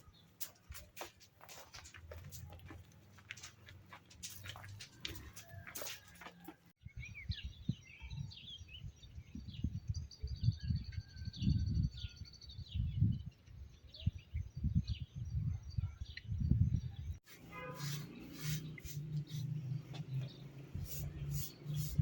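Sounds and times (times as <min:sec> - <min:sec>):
small birds chirping: 0:00.0 - 0:22.0
wind gusts on microphone: 0:06.8 - 0:17.8.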